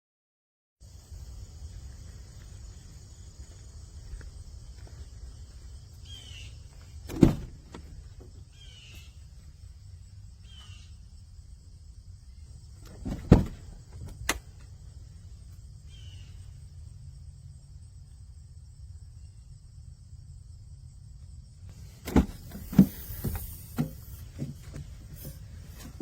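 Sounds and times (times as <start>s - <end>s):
things being handled and pushed: 7.0s - 8.5s, 12.8s - 14.5s, 21.7s - 26.0s.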